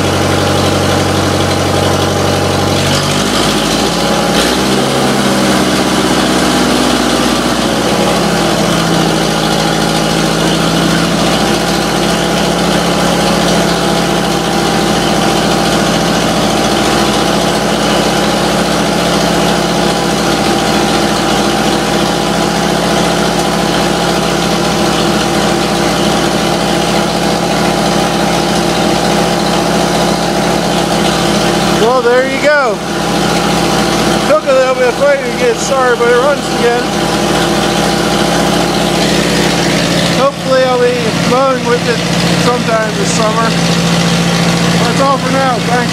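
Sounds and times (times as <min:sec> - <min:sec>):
tractor engine idling: 0:00.0 - 0:45.9.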